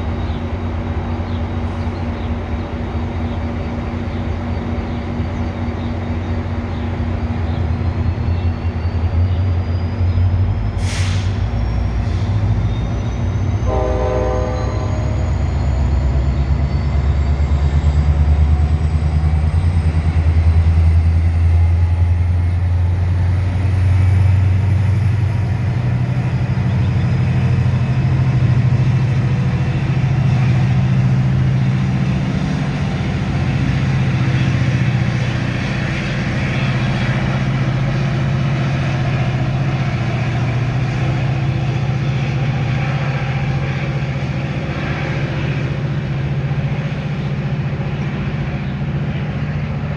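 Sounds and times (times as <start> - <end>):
train rumbling: 0.0 - 49.9
train horn blast: 13.6 - 15.4.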